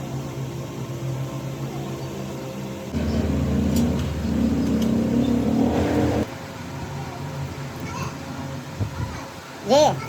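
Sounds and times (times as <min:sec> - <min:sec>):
steady low hum: 0:00.0 - 0:06.3
engine running loudly: 0:02.9 - 0:06.3.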